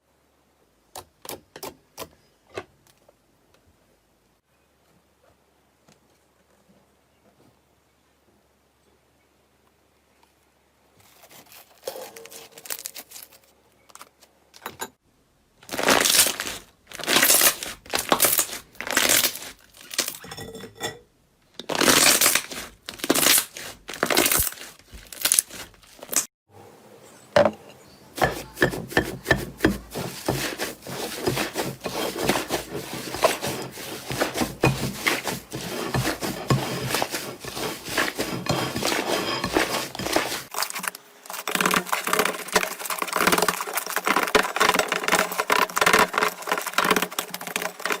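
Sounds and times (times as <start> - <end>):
slime squishing: 29.3 - 48.0.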